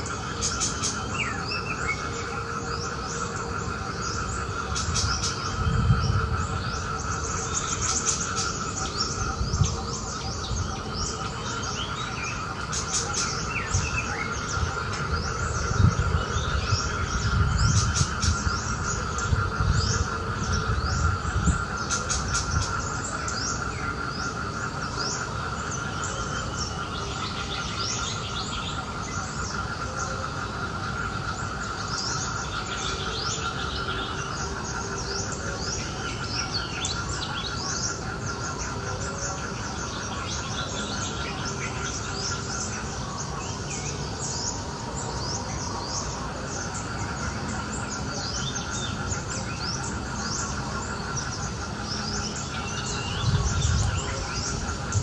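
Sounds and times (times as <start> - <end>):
birds chirping: 0.0 - 55.0
insect drone: 0.0 - 55.0.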